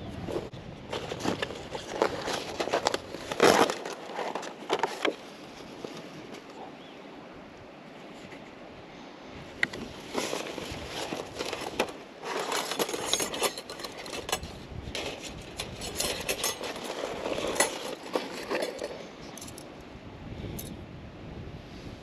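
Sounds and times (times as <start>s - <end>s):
objects clinking and scraping: 10.1s - 19.7s.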